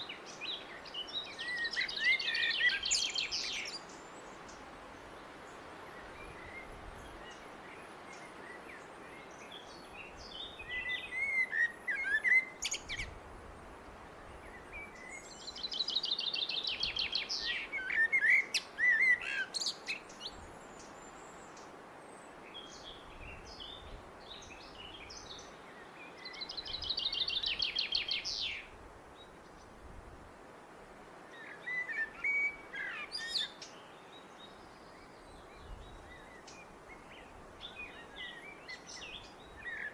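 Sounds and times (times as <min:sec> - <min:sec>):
blackbird singing: 0:00.0 - 0:04.0, 0:09.4 - 0:13.1, 0:14.5 - 0:20.9, 0:22.6 - 0:28.7, 0:31.4 - 0:39.9
steady background hiss: 0:00.0 - 0:39.9.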